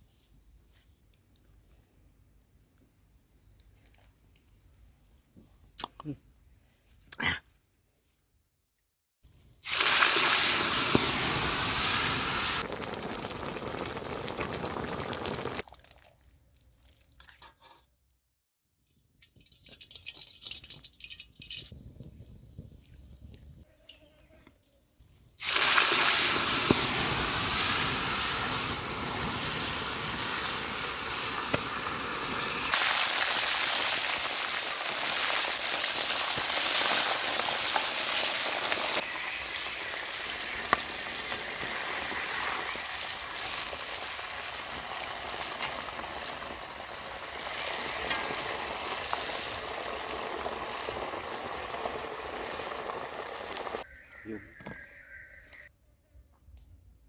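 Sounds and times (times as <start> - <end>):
food sizzling in hot oil: 9.6 - 15.7, 25.4 - 53.9.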